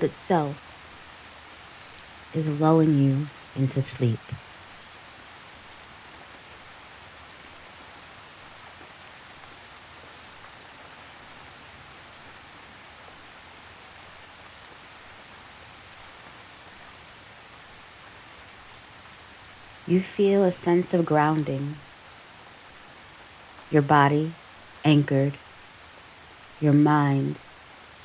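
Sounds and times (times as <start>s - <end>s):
gentle rain hiss: 0.0s - 28.0s
raindrop ticks: 0.1s - 3.6s, 20.6s - 26.6s.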